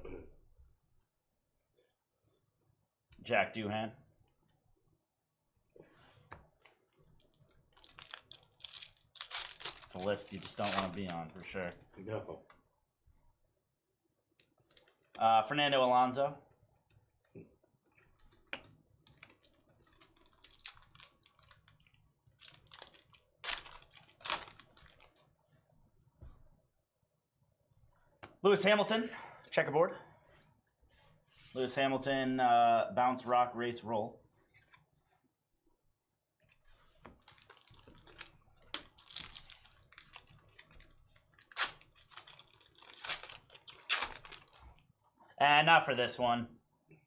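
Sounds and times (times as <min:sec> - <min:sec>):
trading cards clicking and rustling: 0:08.1 - 0:11.6.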